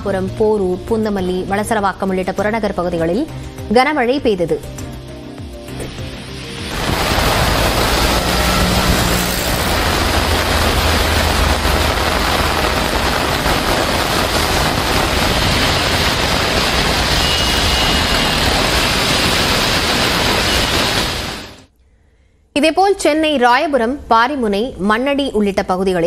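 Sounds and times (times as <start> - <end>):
heavy rain falling: 6.6 - 21.7
traffic on wet road: 6.7 - 21.6
low engine rumble: 6.8 - 16.7.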